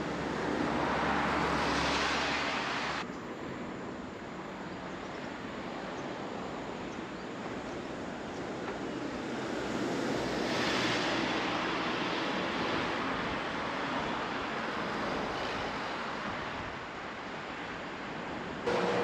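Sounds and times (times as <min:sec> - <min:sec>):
passing vehicle: 0:00.0 - 0:03.0, 0:18.7 - 0:19.0
road traffic rush: 0:00.0 - 0:19.0.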